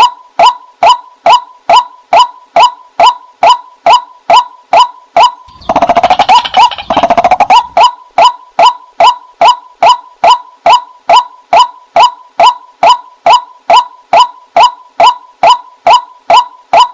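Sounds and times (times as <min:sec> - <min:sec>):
bird sharp pitched call: 0:04.8 - 0:10.0
bird rattling chatter: 0:05.5 - 0:07.8.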